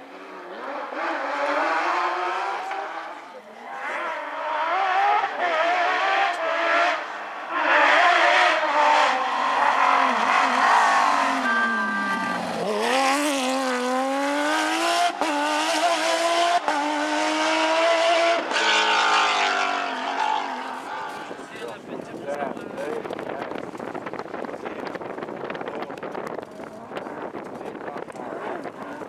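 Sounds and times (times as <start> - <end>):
rally car engine revving: 0.0 - 29.0
gear changes: 7.6 - 29.0.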